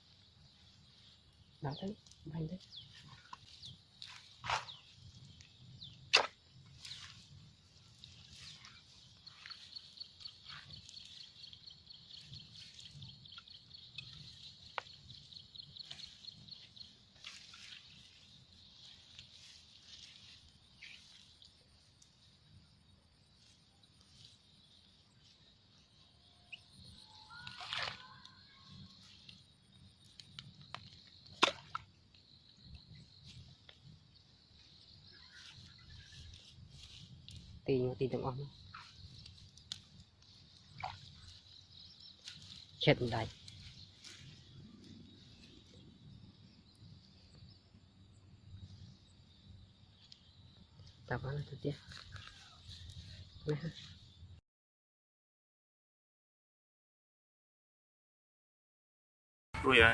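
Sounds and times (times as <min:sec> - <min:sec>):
birds chirping: 0:00.0 - 0:21.2, 0:37.7 - 0:51.0.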